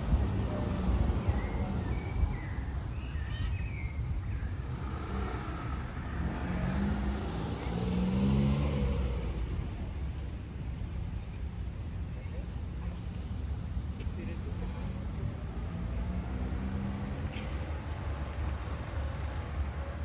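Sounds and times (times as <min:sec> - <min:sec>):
low rumble of traffic: 0:00.0 - 0:20.0
car passing: 0:04.6 - 0:10.4, 0:14.1 - 0:19.0.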